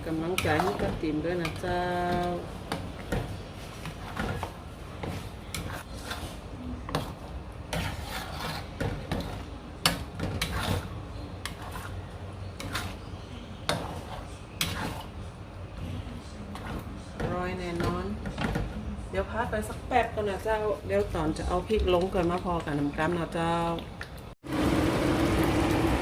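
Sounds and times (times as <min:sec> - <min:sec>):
spatula scraping paste in pan: 0:00.4 - 0:01.6, 0:03.0 - 0:15.2.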